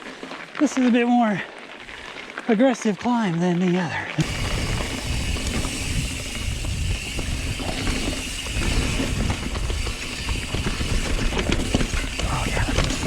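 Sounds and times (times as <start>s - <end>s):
mountain bike rumbling on dirt: 4.2s - 13.0s
small clicks and rattles: 4.3s - 13.0s.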